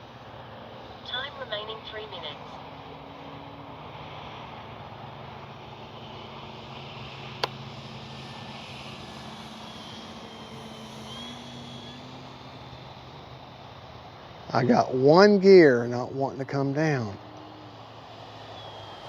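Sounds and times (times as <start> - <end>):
model plane propeller motor: 4.0 - 14.6, 16.3 - 19.0.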